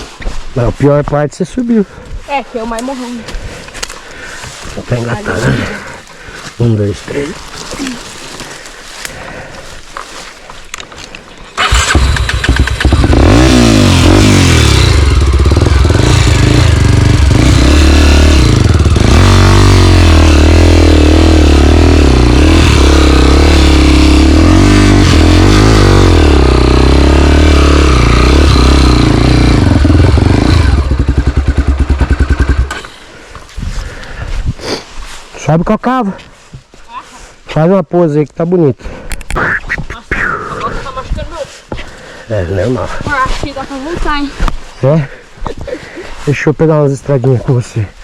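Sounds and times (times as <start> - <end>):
dirt bike engine revving hard: 11.6 - 32.9.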